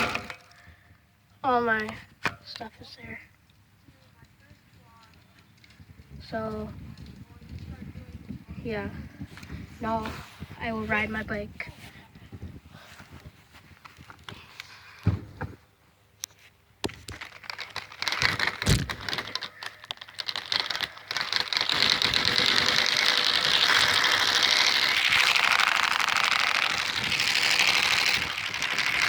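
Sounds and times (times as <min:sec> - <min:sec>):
cards clattering on bicycle spokes: 0:00.0 - 0:00.9, 0:16.2 - 0:29.0.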